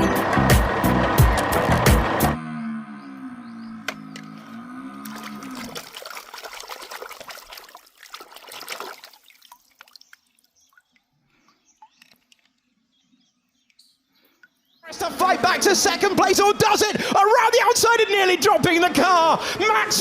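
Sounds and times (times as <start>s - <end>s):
wavering low hum: 0.0s - 5.8s
water pouring and splashing: 5.0s - 11.1s
water dripping: 5.0s - 12.6s.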